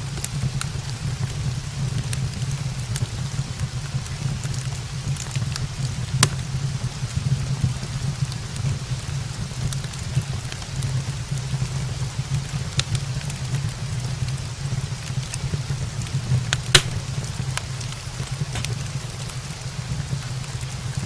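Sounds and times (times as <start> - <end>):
steady rain: 0.0 - 21.0
wood fire crackling: 0.0 - 21.0.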